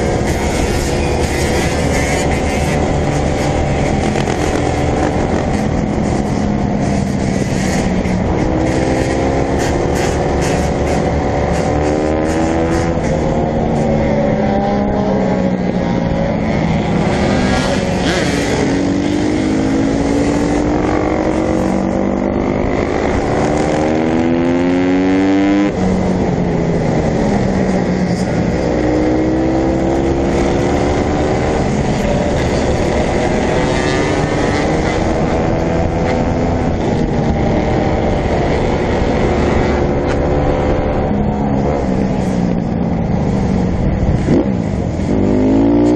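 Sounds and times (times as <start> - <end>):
dirt bike engines revving: 0.0 - 45.9.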